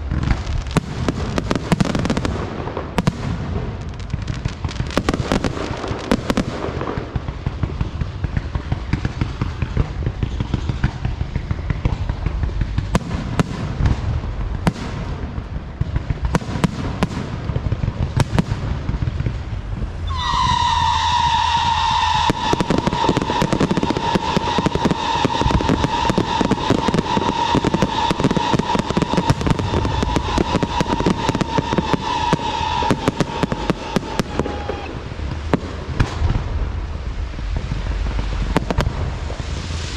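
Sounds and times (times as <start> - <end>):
fireworks crackling pops: 0.0 - 39.9
high firework whistle: 20.0 - 35.2.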